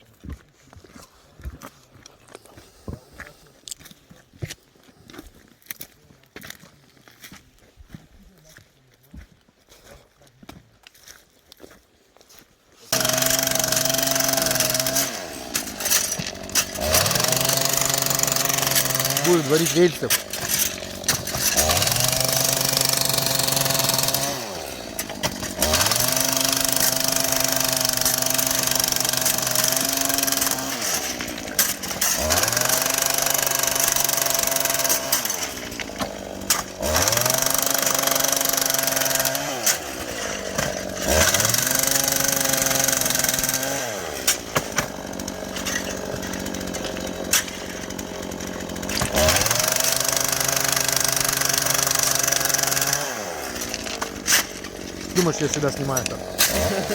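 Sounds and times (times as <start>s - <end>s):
small petrol engine revving: 12.9s - 56.9s.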